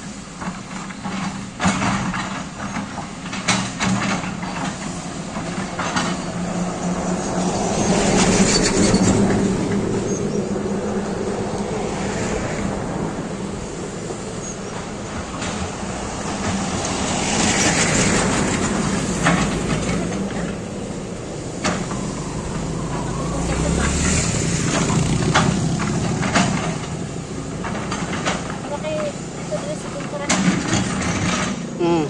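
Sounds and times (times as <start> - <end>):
excavator engine running: 0.0 - 32.0.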